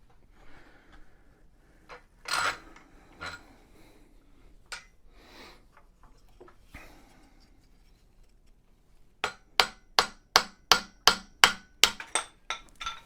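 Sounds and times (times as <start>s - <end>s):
hammer strikes on wood: 9.2s - 12.3s.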